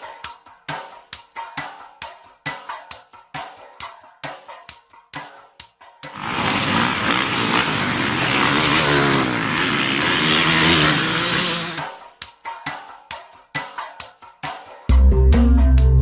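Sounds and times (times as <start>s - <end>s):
motocross engines revving: 6.2s - 11.8s.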